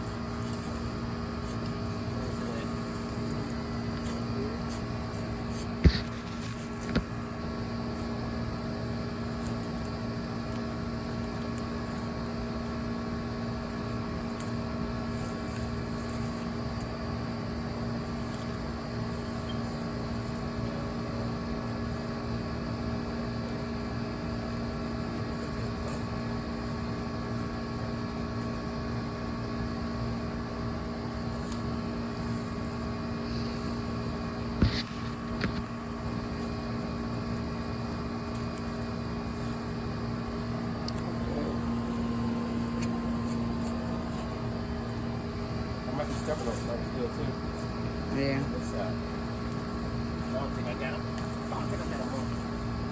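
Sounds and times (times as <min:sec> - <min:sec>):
motor humming: 0:00.0 - 0:12.4, 0:30.7 - 0:52.9.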